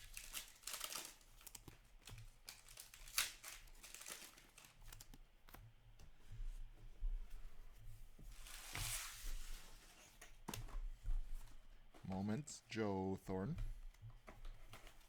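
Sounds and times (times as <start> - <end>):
foil wrappers crinkling: 0.0 - 5.1.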